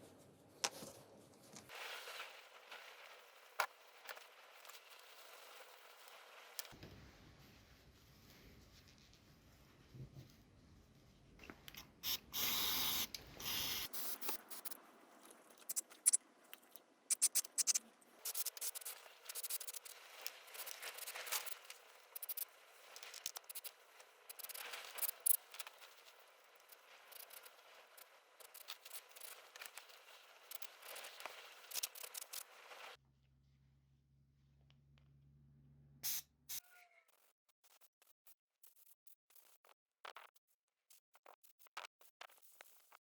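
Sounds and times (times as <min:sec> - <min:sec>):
short hiss: 0:11.8 - 0:14.8
metal parts clicking and scraping: 0:14.0 - 0:23.7.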